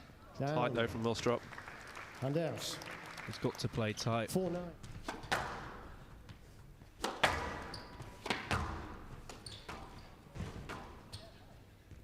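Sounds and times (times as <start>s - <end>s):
racket hitting squash ball: 4.9s - 6.0s, 7.0s - 11.1s.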